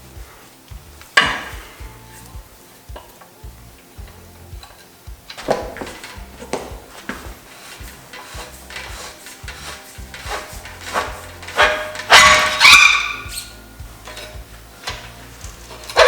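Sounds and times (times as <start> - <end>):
metal tools clinking: 1.2 - 16.0
metal clatter with ringing: 4.0 - 16.0.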